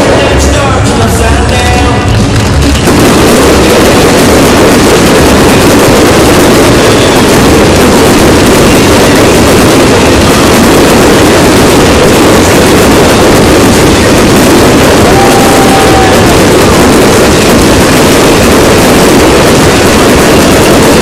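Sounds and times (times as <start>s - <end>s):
fireworks crackling barrage: 0.0s - 21.0s.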